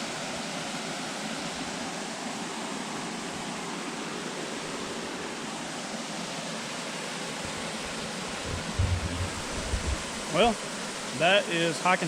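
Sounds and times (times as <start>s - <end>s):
creek water rushing over falls: 0.0s - 12.0s
low rumbles: 8.4s - 10.4s.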